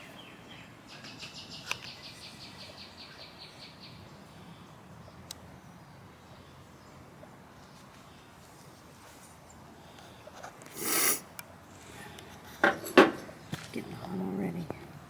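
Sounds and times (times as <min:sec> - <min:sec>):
short loud hiss: 0:10.7 - 0:11.3.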